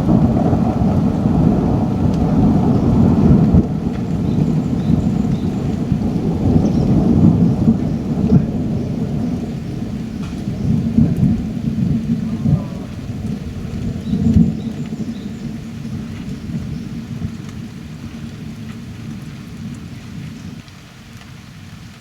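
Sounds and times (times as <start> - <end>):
heavy rain: 0.0 - 22.0
rolling thunder rumble: 0.0 - 22.0.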